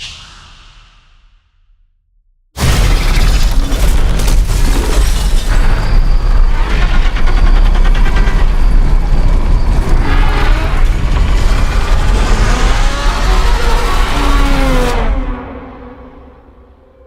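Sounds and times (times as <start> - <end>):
booming trailer score: 0.0 - 16.6
crashes and impacts: 2.6 - 7.4.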